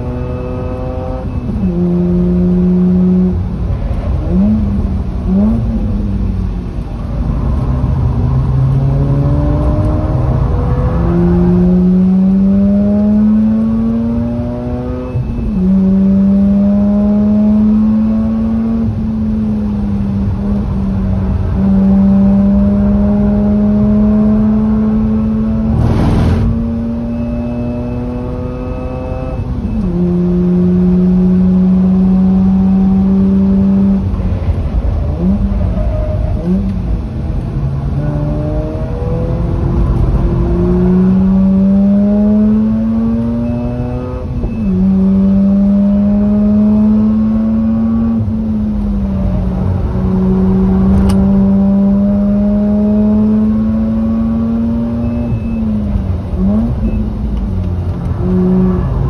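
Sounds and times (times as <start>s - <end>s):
rotary engine revving: 21.9s - 29.2s.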